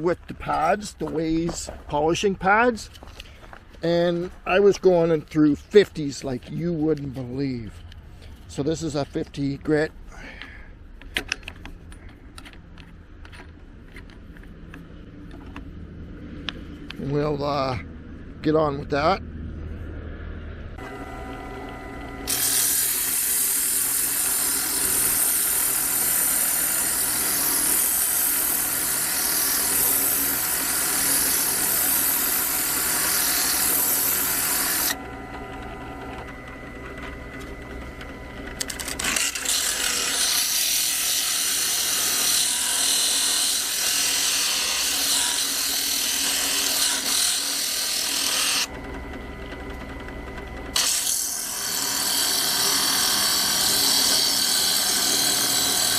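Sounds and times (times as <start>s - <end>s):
drill press motor running: 20.8s - 55.9s
polishing pad grinding stone: 20.8s - 55.9s.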